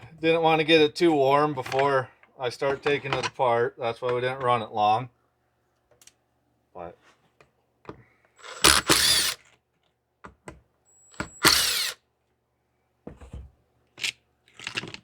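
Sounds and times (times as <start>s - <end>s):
power drill motor whine: 8.4s - 9.5s, 10.9s - 12.0s.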